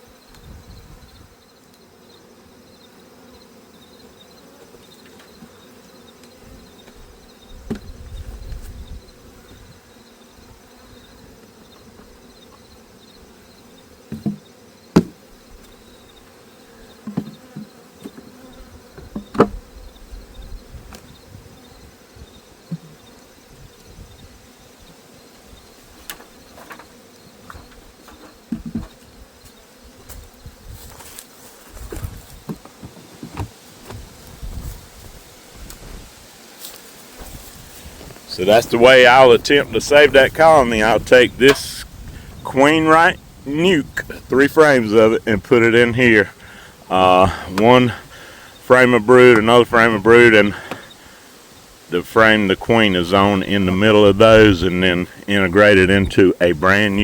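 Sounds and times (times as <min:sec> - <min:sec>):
honeybees humming: 0:00.0 - 0:57.0
hive frames knocking: 0:07.6 - 0:08.0, 0:14.1 - 0:15.8, 0:16.9 - 0:19.7, 0:26.0 - 0:30.3, 0:31.8 - 0:34.6.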